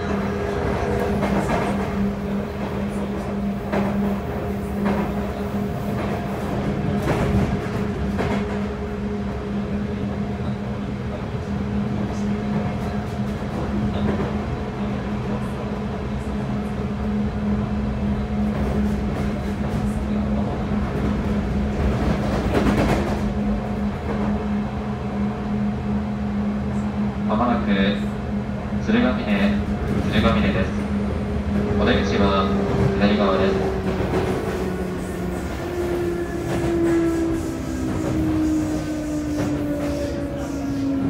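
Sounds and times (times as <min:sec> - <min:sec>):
train low hum: 0:00.0 - 0:41.0
wheels rumbling on rail: 0:00.0 - 0:41.0.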